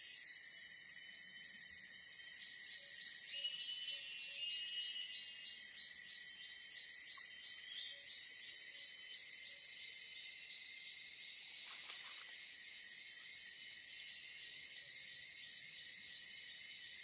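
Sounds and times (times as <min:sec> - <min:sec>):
forest insects trilling: 0:00.0 - 0:17.0.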